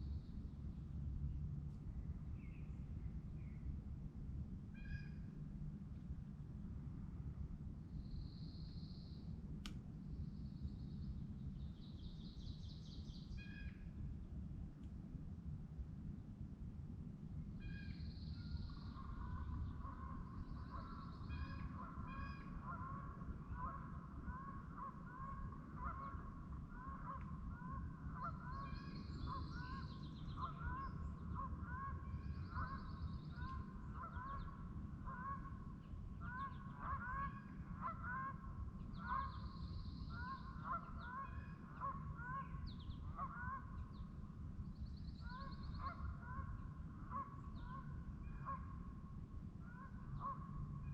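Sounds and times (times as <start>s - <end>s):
steady low rumble: 0.0s - 50.9s
geese honking: 36.3s - 38.4s.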